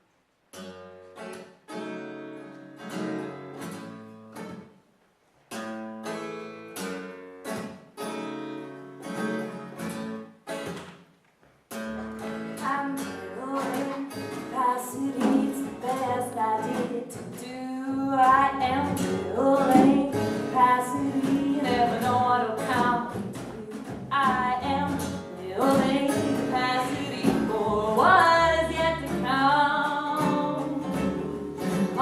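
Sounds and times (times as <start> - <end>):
acoustic guitar strumming chords: 11.7 - 32.0
woman singing: 12.6 - 32.0.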